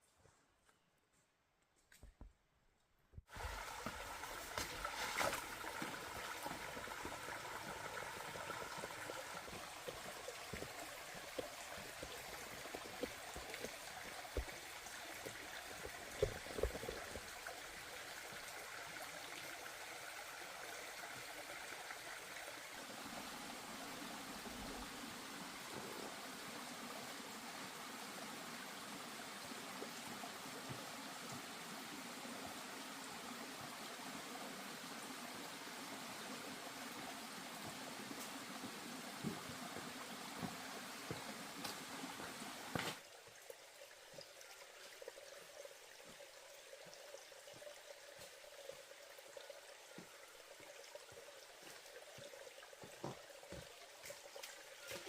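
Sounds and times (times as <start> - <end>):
water running: 3.3 - 24.9.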